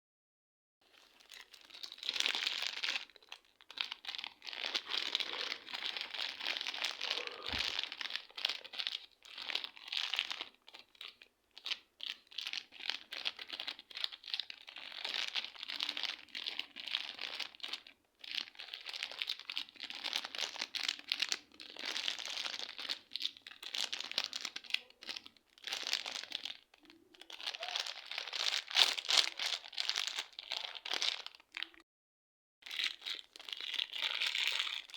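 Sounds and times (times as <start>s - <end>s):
slime crackling: 1.4s - 8.8s.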